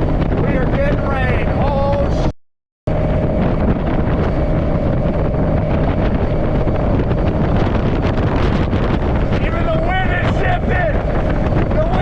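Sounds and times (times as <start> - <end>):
wind buffeting microphone: 0.0 - 2.3, 2.9 - 12.0
boat motor whining: 2.9 - 12.0.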